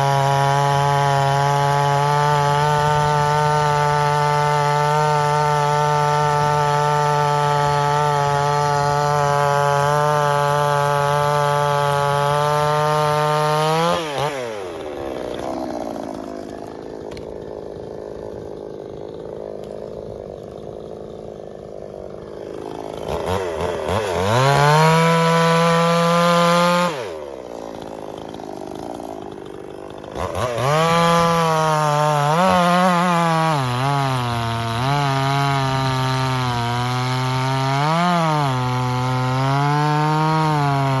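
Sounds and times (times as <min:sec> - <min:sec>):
chainsaw revving and idling: 0:00.0 - 0:41.0.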